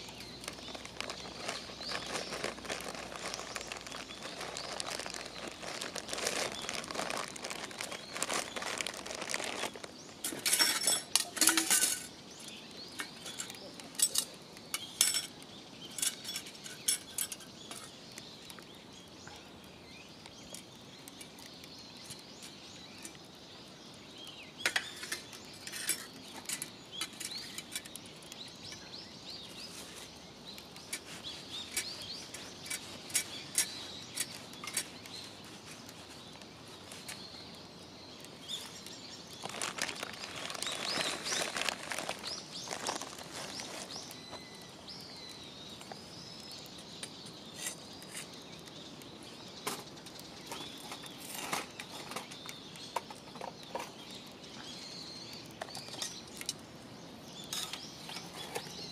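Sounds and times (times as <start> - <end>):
wood fire crackling and popping: 0.0 - 58.9
light clinks: 10.2 - 18.0.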